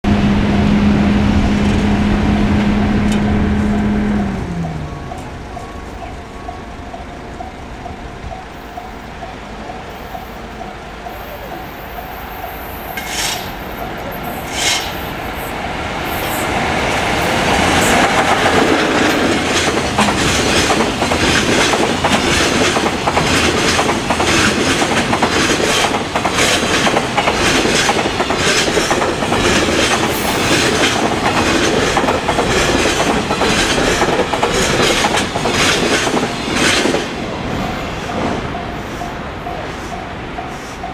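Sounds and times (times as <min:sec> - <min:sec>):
freight train passing: 0:00.0 - 0:40.9
wagon wheels clicking over rail joints: 0:17.7 - 0:37.0.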